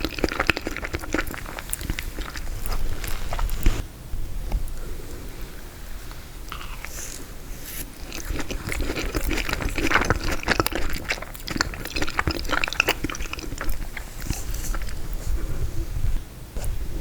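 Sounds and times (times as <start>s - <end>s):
person chewing crunchy frozen dessert: 0.0s - 3.8s, 6.4s - 15.9s.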